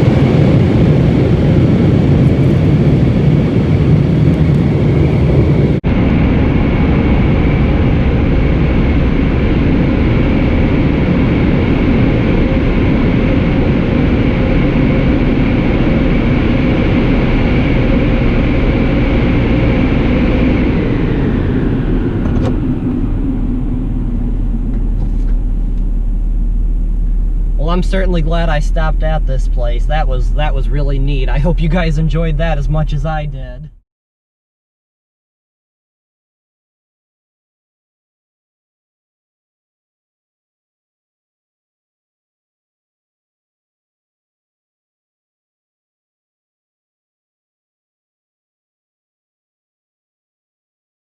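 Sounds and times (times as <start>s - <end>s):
car wash dryer blowing: 0.0s - 5.8s, 8.8s - 33.4s
low rumble: 0.0s - 33.8s.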